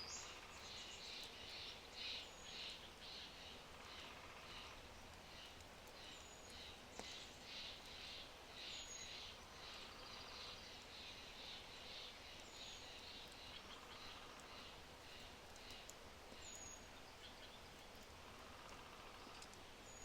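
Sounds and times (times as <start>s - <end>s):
bird chirping: 0.0s - 20.0s
fire crackle: 0.0s - 20.0s
low steady hiss: 0.0s - 20.0s.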